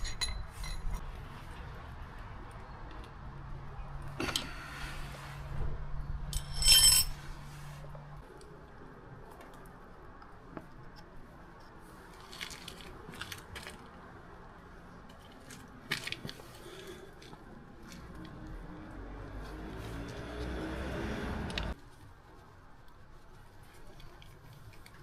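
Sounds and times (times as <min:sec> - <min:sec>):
metal tools clinking and rattling: 0:00.0 - 0:01.0, 0:06.3 - 0:07.2
ringing metallic clatter: 0:06.3 - 0:07.2.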